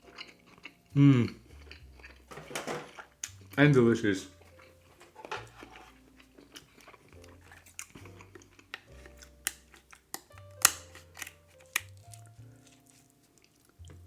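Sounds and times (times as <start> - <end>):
chewing: 0.0 - 2.3, 4.3 - 14.0
shells cracking: 7.6 - 12.3.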